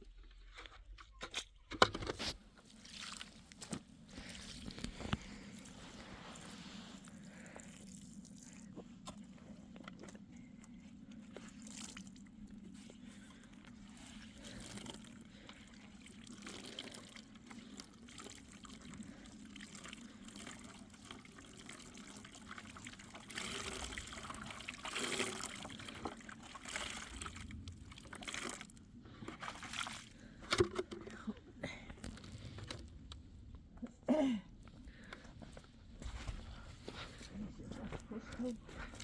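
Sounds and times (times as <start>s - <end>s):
water trickling and pouring: 11.1s - 30.3s.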